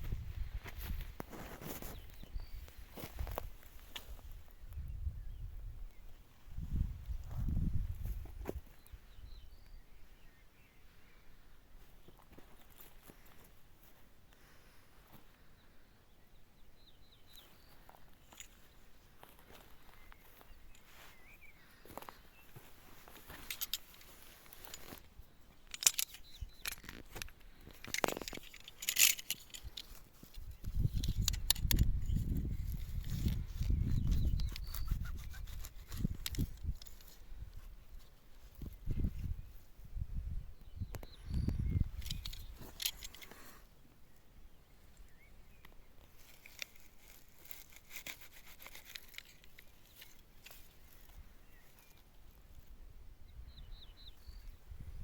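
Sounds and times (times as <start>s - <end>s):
faint bird chirps: 1.5s - 14.4s, 15.0s - 47.8s, 48.4s - 55.0s
dry vegetation crackling: 17.4s - 40.0s, 41.0s - 43.6s, 45.0s - 52.8s.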